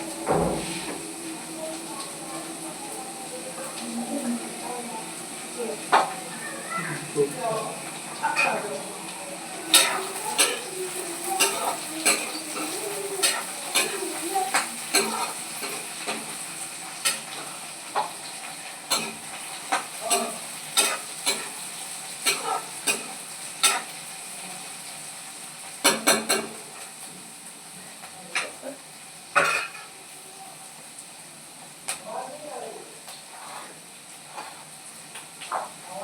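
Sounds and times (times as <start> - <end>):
food sizzling in a pan: 0.0 - 36.0
spoon clinking and scraping pan: 9.7 - 16.4, 22.2 - 23.9.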